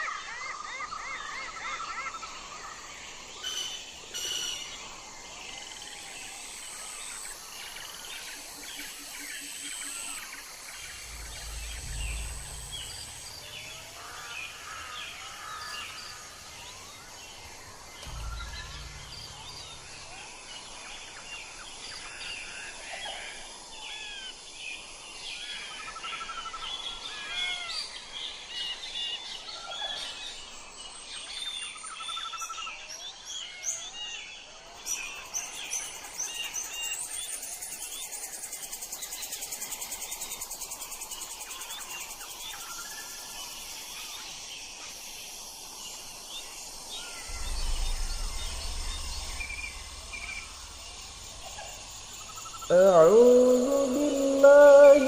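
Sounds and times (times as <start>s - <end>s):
animals chirping in forest: 0.0s - 55.0s
brief low rumbles: 10.7s - 21.0s, 47.0s - 54.0s
fast high insect trill: 46.6s - 55.0s.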